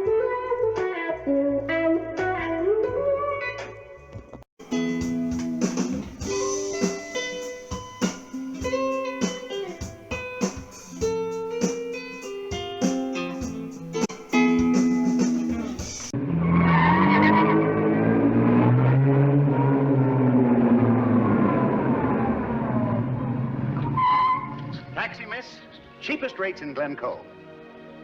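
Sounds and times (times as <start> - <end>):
guitar plucking notes and chords: 0.0 - 3.9, 4.6 - 16.2
loud rising pitch sound: 16.2 - 25.2.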